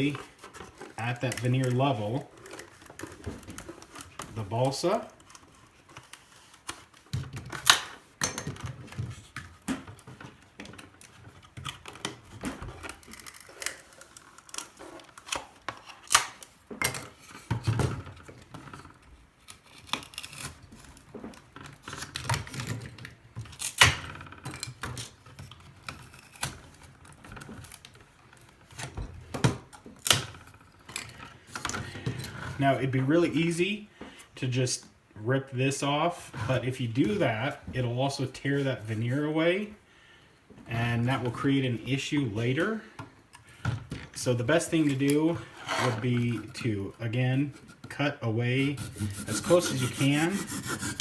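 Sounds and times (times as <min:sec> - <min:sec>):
knife cutting and prying wood: 0:48.5 - 0:51.0.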